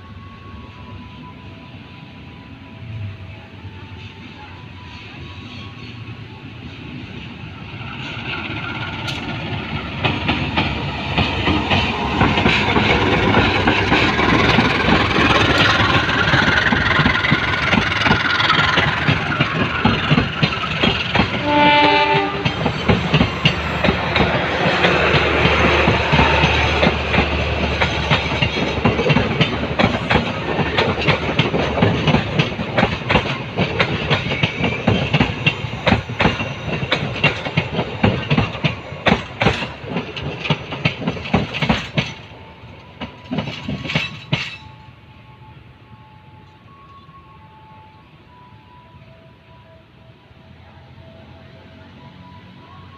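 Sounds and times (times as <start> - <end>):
train wheels clattering on rails: 7.7 - 44.8
train horn: 21.3 - 26.5.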